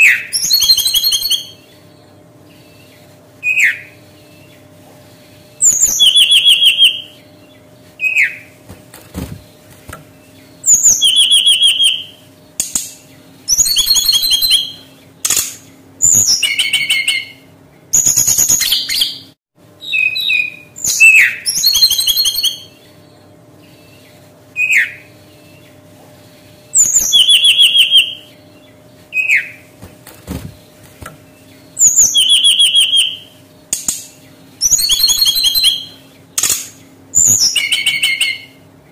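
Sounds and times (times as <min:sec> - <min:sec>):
bird singing whistled notes: 0:00.0 - 0:02.1, 0:05.6 - 0:08.4, 0:10.2 - 0:12.2, 0:13.4 - 0:14.9, 0:16.0 - 0:24.0, 0:24.6 - 0:25.7, 0:26.7 - 0:29.6, 0:31.4 - 0:33.4, 0:34.6 - 0:36.0.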